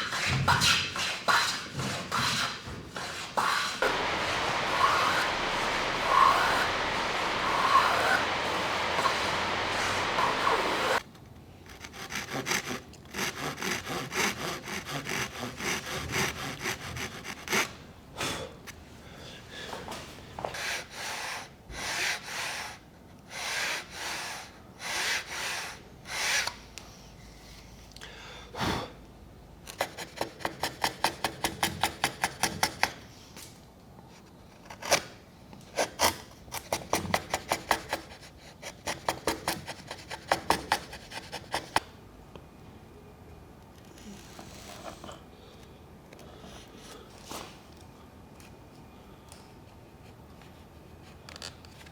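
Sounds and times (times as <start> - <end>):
hand tool rasping wood: 1.3 - 11.0, 11.7 - 17.6.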